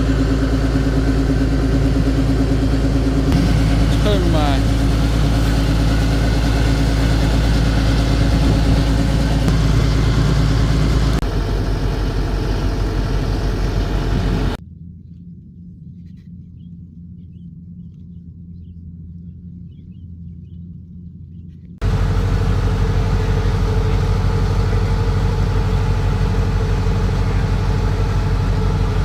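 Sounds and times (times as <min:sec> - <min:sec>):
harvesting machine engine running: 0:00.0 - 0:14.6, 0:21.8 - 0:29.0
muffled low hum: 0:00.0 - 0:14.6, 0:21.8 - 0:29.0.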